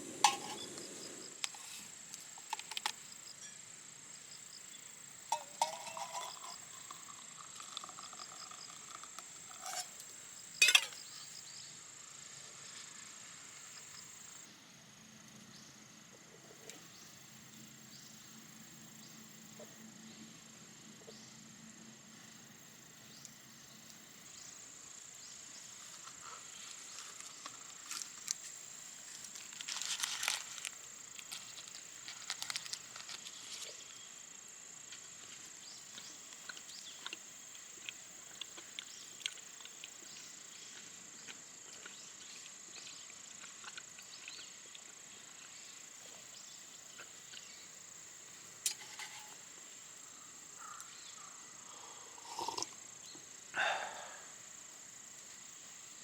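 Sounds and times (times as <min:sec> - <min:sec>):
high-pitched insect chorus: 0:00.0 - 0:16.0, 0:16.8 - 0:56.0
crinkling rustling clicks: 0:29.1 - 0:33.7.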